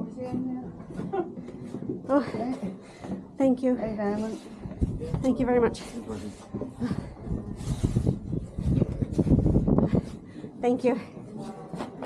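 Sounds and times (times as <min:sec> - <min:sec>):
microphone rustling and rubbing: 0:04.0 - 0:10.3.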